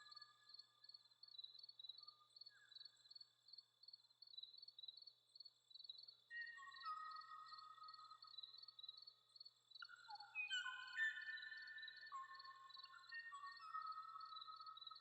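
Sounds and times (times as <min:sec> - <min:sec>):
long whistled bird notes: 0:09.9 - 0:15.0.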